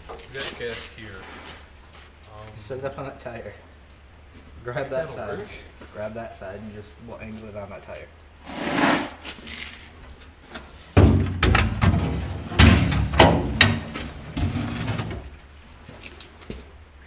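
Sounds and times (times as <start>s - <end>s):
fuel tank clunking and knocking: 11.0s - 15.2s.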